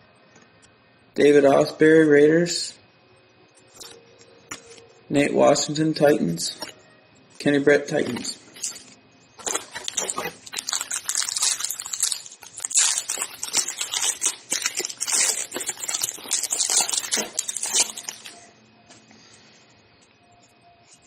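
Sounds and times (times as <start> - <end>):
foil wrapper tearing and crinkling: 8.1 - 18.4.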